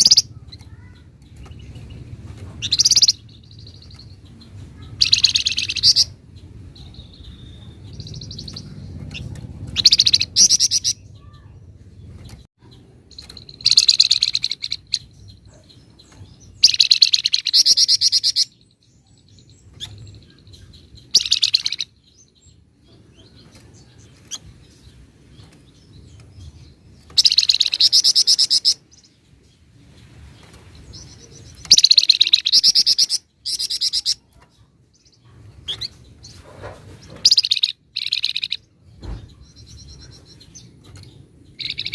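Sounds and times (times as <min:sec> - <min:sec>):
songbird trilling: 0:00.0 - 0:01.0, 0:02.6 - 0:04.0, 0:04.8 - 0:06.2, 0:06.8 - 0:11.5, 0:12.7 - 0:15.6, 0:16.5 - 0:18.6, 0:19.4 - 0:22.5, 0:27.0 - 0:29.1, 0:30.8 - 0:34.3, 0:37.2 - 0:41.9
faint bird chirps: 0:00.0 - 0:01.9, 0:26.2 - 0:36.3, 0:37.1 - 0:41.9.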